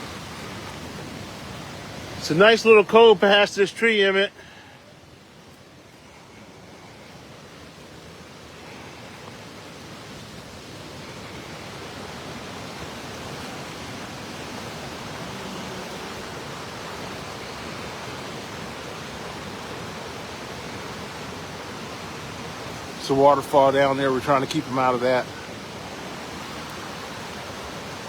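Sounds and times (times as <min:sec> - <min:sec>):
waterfall roaring: 0:00.0 - 0:28.0.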